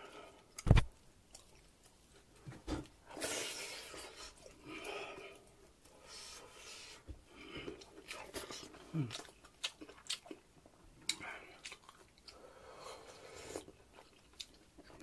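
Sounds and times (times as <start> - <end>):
person chewing meat: 7.4 - 15.0.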